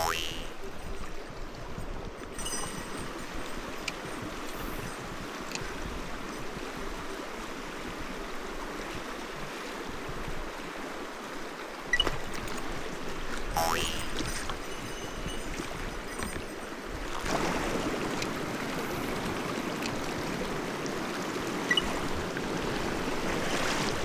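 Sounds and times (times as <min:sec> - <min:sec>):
stream rushing over rocks: 0:02.4 - 0:24.0.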